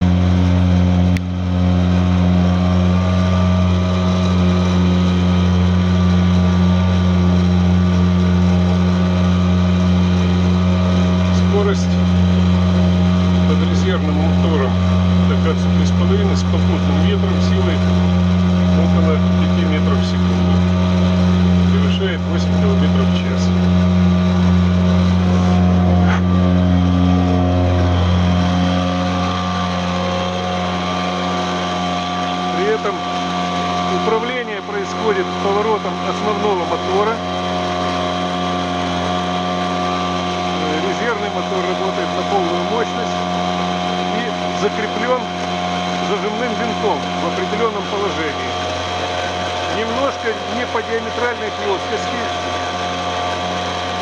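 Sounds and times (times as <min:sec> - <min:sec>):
outboard motor running: 0:00.0 - 0:54.0.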